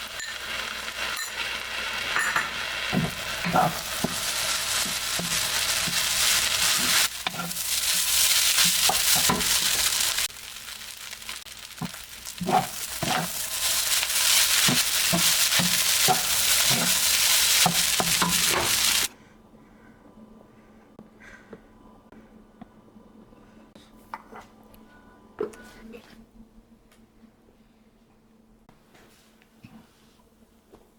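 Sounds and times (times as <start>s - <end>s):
food sizzling in frying pan: 0.0s - 19.1s
utensil scraping and knocking pan: 2.2s - 7.6s, 11.8s - 13.4s, 14.4s - 19.0s.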